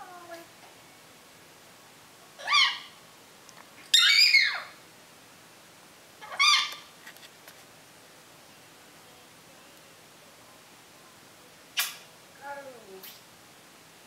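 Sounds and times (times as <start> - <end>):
parrot whistled calls: 2.4 - 3.0, 3.9 - 4.8, 6.2 - 6.8.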